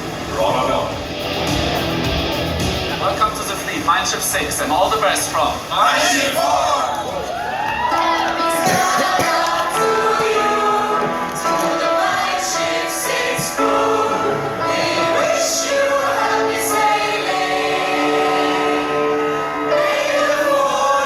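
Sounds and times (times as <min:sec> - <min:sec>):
musical accompaniment: 0:00.9 - 0:04.0, 0:07.4 - 0:21.0
choir singing: 0:05.3 - 0:21.0.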